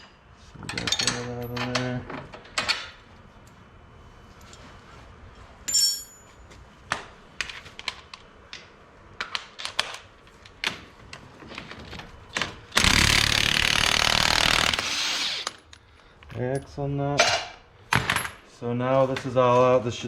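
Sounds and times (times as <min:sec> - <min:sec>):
metal tools clinking: 0:05.7 - 0:06.3
impact wrench rattling: 0:12.7 - 0:15.6.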